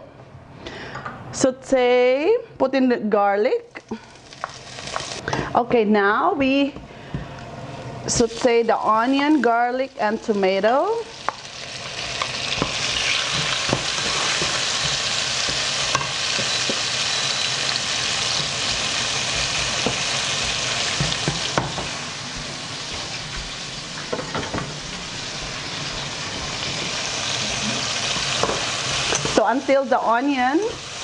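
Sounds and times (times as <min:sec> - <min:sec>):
vegetables sizzling in oil: 0:03.9 - 0:05.3, 0:08.1 - 0:31.0
spatula stirring and scraping: 0:12.1 - 0:17.4.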